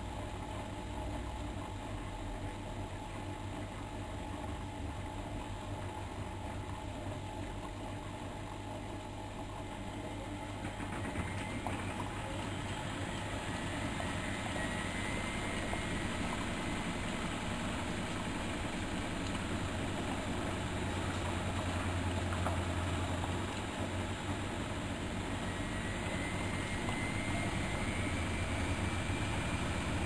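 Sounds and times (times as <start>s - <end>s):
washing machine humming: 0.0s - 30.0s
faint rising whine: 8.2s - 30.0s.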